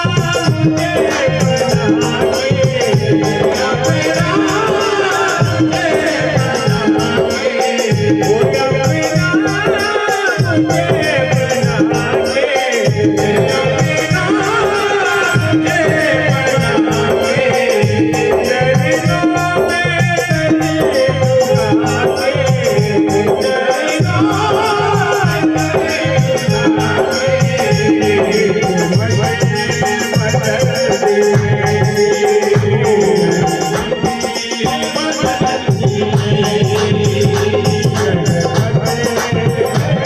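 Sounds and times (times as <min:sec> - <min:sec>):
fast steady percussion: 0:00.0 - 0:40.0.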